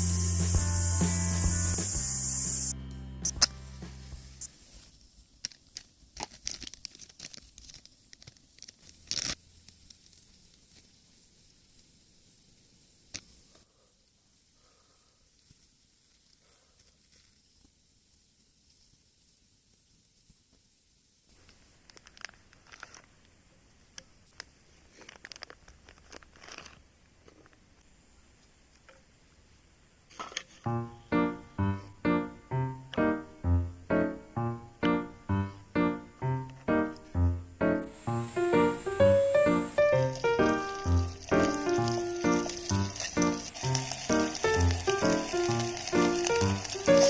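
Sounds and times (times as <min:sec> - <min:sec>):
faint clicks and crackles: 0:04.4 - 0:14.2, 0:15.2 - 0:20.7, 0:21.3 - 0:29.1, 0:37.8 - 0:47.0
crinkling and rustling of handling: 0:04.9 - 0:12.0, 0:15.3 - 0:20.6, 0:21.3 - 0:30.7
short tearing noise: 0:05.7 - 0:09.4.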